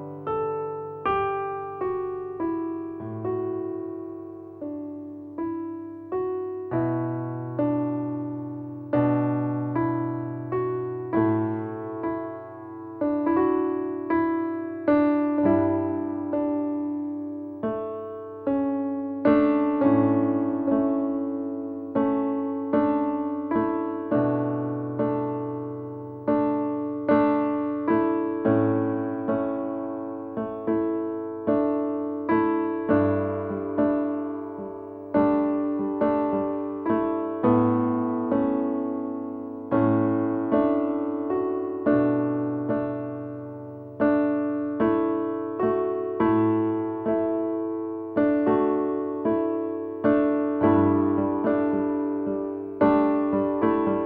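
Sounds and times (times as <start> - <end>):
electric piano chords: 0.0 - 54.0.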